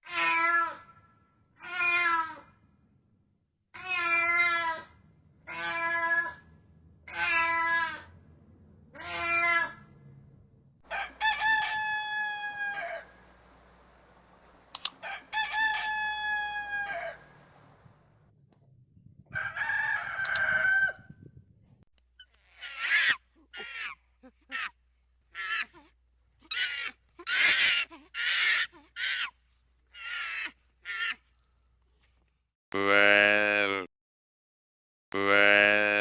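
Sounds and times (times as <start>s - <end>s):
rooster crowing: 10.9s - 17.9s, 19.4s - 21.1s
rough fowl call: 10.9s - 17.9s, 19.4s - 21.0s.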